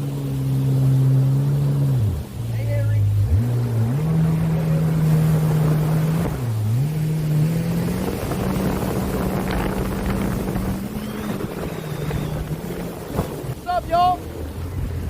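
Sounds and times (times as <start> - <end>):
hiss of water and wind: 0.0 - 15.0
jet ski engine running: 0.0 - 15.0.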